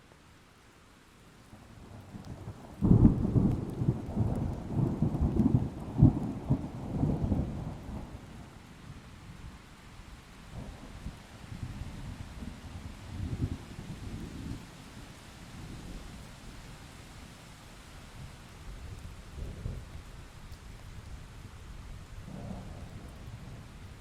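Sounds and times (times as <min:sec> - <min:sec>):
faint rain hiss: 0:00.0 - 0:24.0
rolling thunder rumble: 0:02.2 - 0:08.3, 0:22.2 - 0:24.0.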